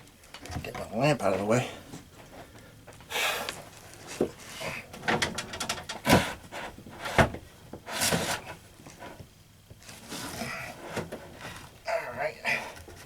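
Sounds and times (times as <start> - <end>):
scraping rustle: 9.8 - 11.8.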